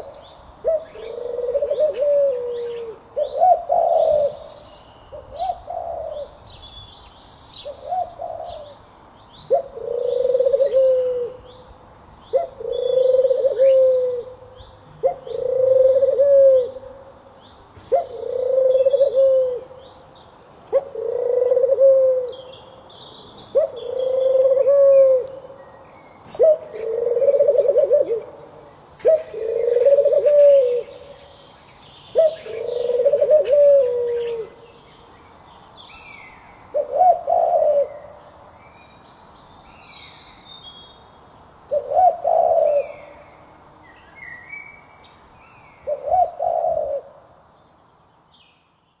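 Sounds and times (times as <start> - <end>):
bird cooing: 0.0 - 6.6, 7.6 - 8.8, 9.4 - 11.5, 12.3 - 17.1, 17.9 - 20.0, 20.7 - 22.6, 23.5 - 25.6, 26.2 - 31.4, 32.1 - 34.8, 36.7 - 38.4, 41.7 - 43.4, 45.8 - 47.3
small birds chirping: 30.8 - 36.7.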